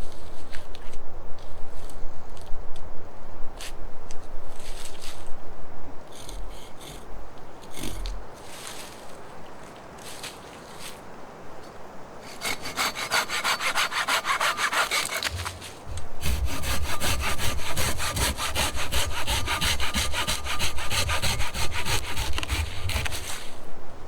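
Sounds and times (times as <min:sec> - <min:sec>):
hand saw cutting wood: 0:12.2 - 0:23.7.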